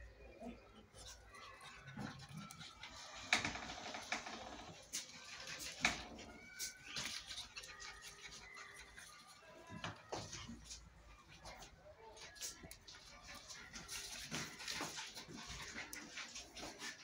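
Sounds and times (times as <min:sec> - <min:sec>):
puppies whining and yipping: 0:04.7 - 0:17.0.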